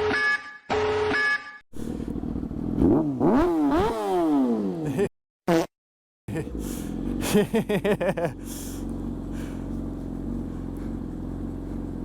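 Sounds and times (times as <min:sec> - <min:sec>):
electronic alarm beeping: 0:00.0 - 0:01.6
sport bike engine revving: 0:01.8 - 0:04.9, 0:06.3 - 0:12.0.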